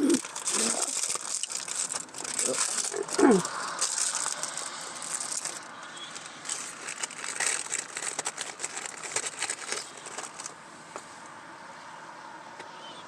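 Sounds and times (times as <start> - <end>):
cracker packet crinkling: 0.0 - 10.6.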